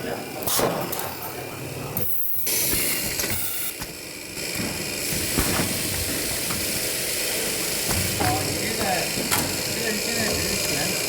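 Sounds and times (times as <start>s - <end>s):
machine hiss: 2.0s - 11.0s.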